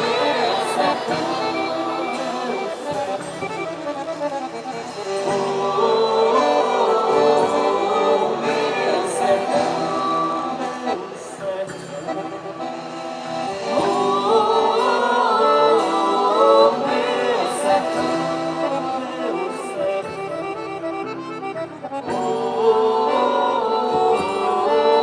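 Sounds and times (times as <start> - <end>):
person singing: 0.0 - 3.7, 5.0 - 20.4, 22.0 - 25.0
accordion dance music: 0.0 - 25.0.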